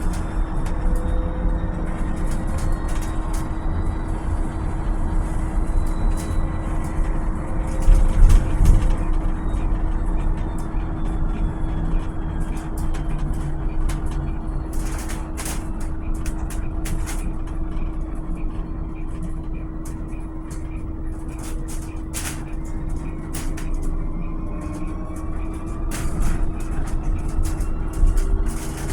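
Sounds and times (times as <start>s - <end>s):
electric bus motor whine: 0.0s - 28.9s
road rumble: 0.0s - 28.9s
clicks and rattles: 5.8s - 28.9s.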